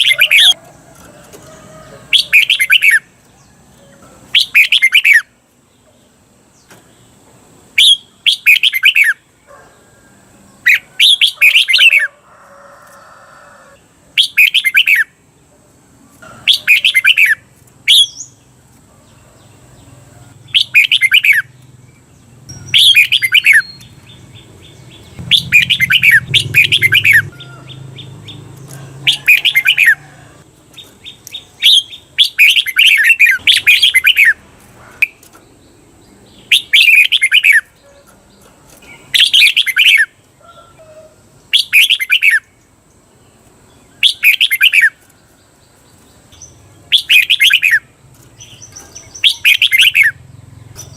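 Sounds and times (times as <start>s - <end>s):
bulbul singing: 0.0s - 0.8s, 2.1s - 7.1s, 7.7s - 9.4s, 14.2s - 15.3s, 16.4s - 18.5s, 19.6s - 34.4s, 35.0s - 40.5s, 41.4s - 50.9s.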